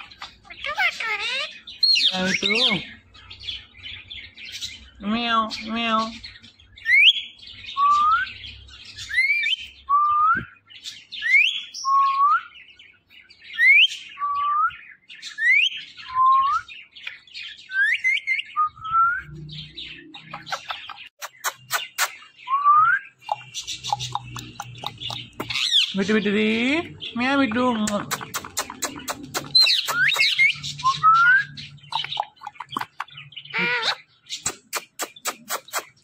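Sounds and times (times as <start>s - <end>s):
parakeet clicking chatter: 0.0s - 2.8s, 20.2s - 22.3s, 23.2s - 26.1s, 27.2s - 30.8s, 31.7s - 36.0s
parakeet whistling calls: 0.0s - 2.8s, 20.2s - 26.0s, 28.4s - 34.1s.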